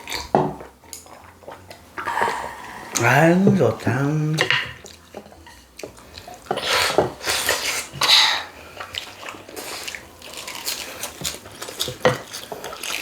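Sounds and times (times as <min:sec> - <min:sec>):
cutlery clinking on plates: 0:06.5 - 0:08.1, 0:11.1 - 0:12.8.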